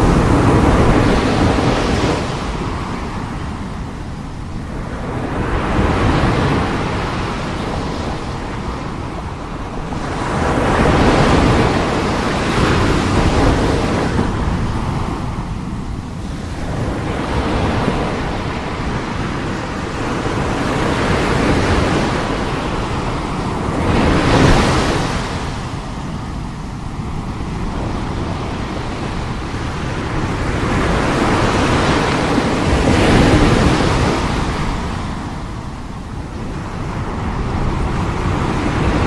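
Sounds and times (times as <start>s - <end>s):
waves breaking: 0.0s - 39.0s.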